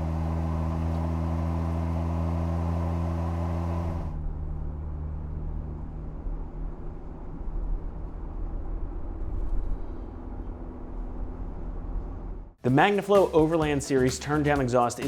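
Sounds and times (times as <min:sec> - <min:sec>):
deep engine exhaust note: 0:00.0 - 0:12.6
dull uneven low rumble: 0:03.8 - 0:12.6.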